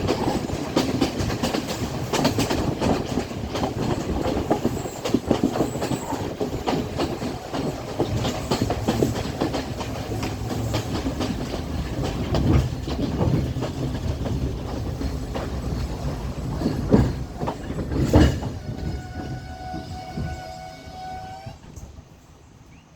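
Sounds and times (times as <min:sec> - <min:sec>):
train wheels clickety-clack: 0:00.0 - 0:22.9
high-pitched brake squeal: 0:18.6 - 0:21.9.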